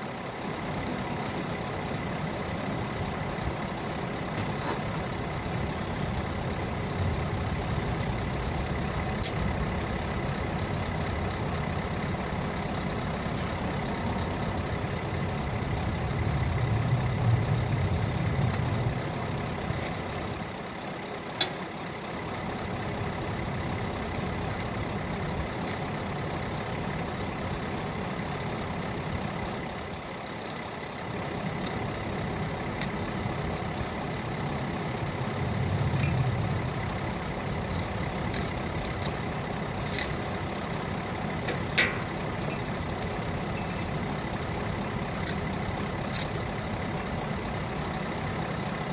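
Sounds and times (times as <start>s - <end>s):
diesel lorry engine running: 0.0s - 48.9s.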